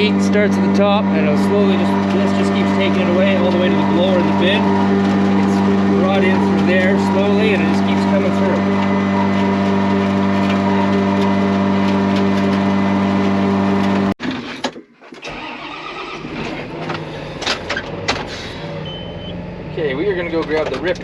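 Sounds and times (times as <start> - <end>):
blower fan humming: 0.0 - 14.2
engine running: 0.0 - 14.2, 15.3 - 21.0.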